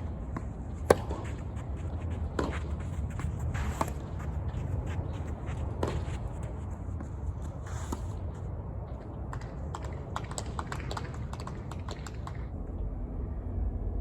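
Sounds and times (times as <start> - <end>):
footsteps and shoe scuffs: 0.4 - 8.2
low rumble: 12.5 - 14.0.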